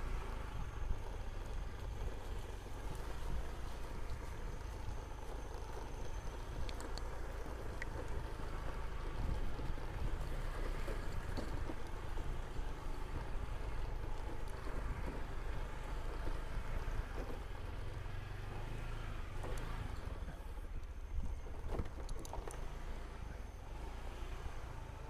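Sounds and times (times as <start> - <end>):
motor scooter engine rumble: 0.0 - 25.0
wind buffeting microphone: 0.4 - 15.6.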